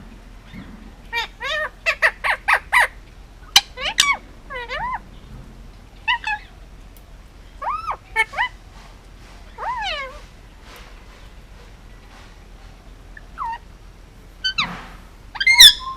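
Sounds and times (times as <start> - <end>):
parakeet squawking: 1.1 - 5.0, 6.0 - 6.5, 7.6 - 8.6, 9.5 - 10.2, 13.2 - 13.7, 14.4 - 14.7, 15.3 - 15.9.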